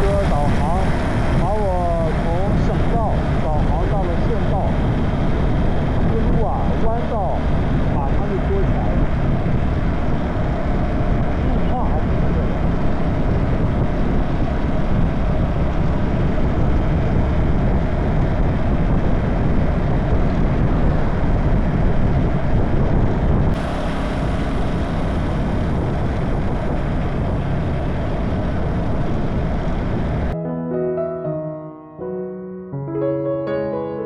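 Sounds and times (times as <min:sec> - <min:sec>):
motorcycle engine riding: 0:00.0 - 0:30.4
wind noise on microphone: 0:00.0 - 0:30.4.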